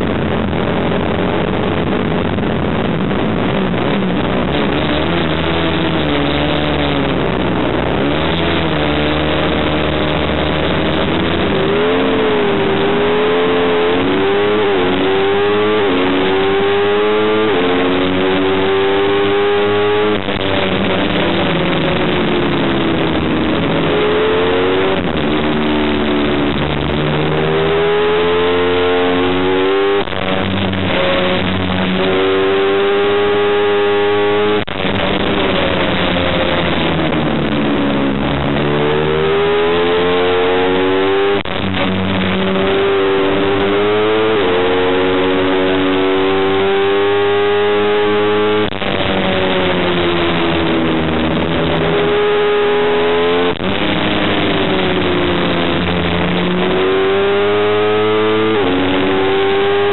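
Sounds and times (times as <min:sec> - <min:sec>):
racing motorcycle engine: 0:00.0 - 0:59.9.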